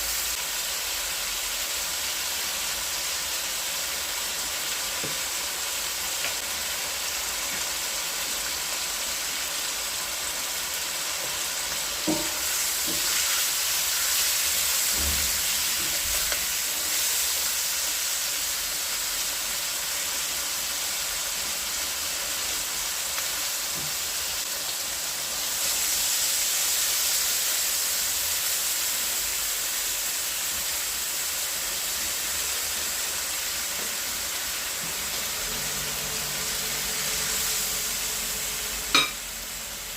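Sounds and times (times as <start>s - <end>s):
food sizzling in a pan: 0.0s - 39.9s
utensil knocking against pan: 12.0s - 13.1s, 39.0s - 39.2s.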